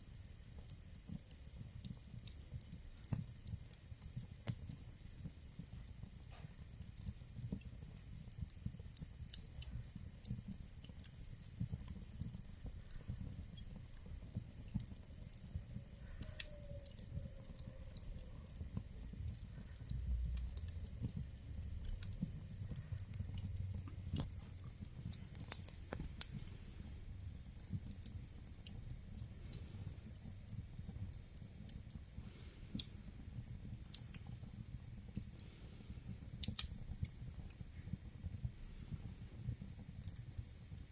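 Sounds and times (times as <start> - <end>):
fire crackling and popping: 0.0 - 40.9
low steady rumble: 0.0 - 40.9.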